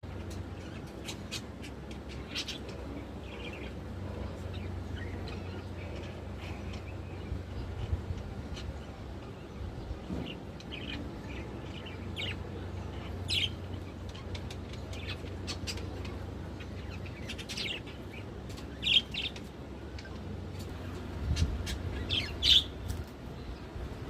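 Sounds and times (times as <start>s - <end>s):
budgerigars chirping: 21.6s - 22.8s.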